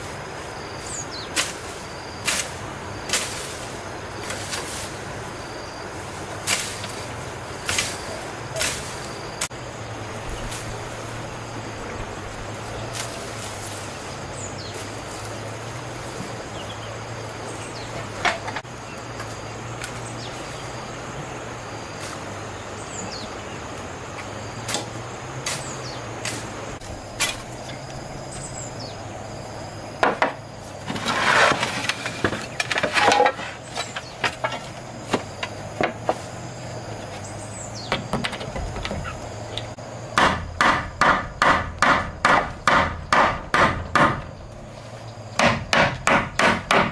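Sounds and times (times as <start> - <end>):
steady low hum: 0.0 - 46.9
hammer striking wood: 30.0 - 30.4, 40.2 - 44.3, 45.4 - 46.9.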